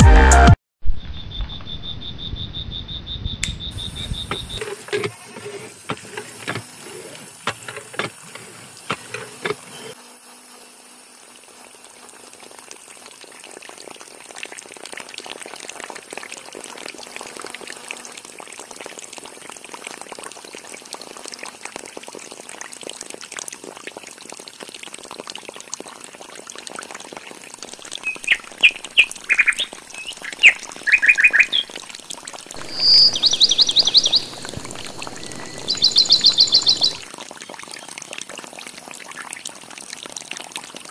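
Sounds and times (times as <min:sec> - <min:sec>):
bird trill: 0:01.1 - 0:04.6, 0:28.0 - 0:31.7, 0:32.6 - 0:37.0
birds chirping: 0:03.5 - 0:04.8, 0:28.0 - 0:31.7, 0:32.6 - 0:37.1
hand pump clicks and knocks: 0:08.9 - 0:09.7
water trickling into water: 0:10.6 - 0:40.9.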